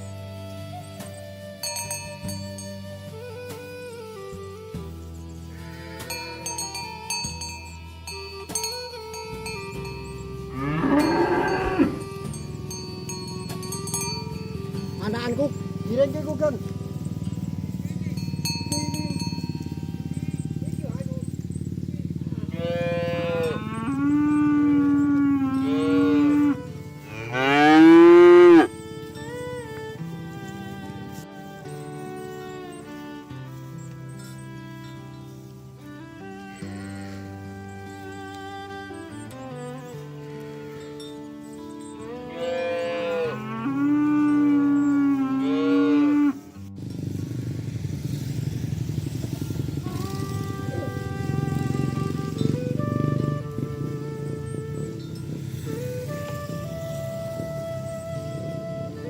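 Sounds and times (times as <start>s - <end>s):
cattle mooing: 5.5s - 7.1s, 10.4s - 12.4s, 22.2s - 28.8s, 42.2s - 46.6s, 49.1s - 52.5s.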